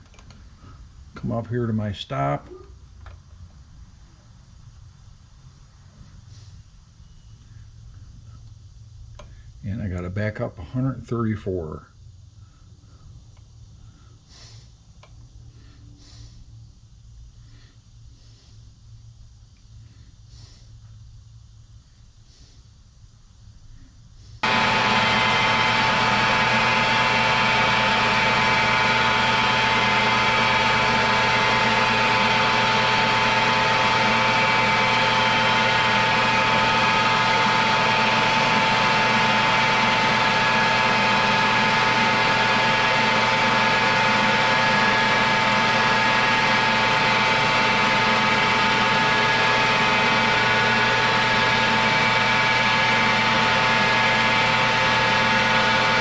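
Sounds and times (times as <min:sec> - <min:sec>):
metal lathe whining: 0:24.4 - 0:56.0.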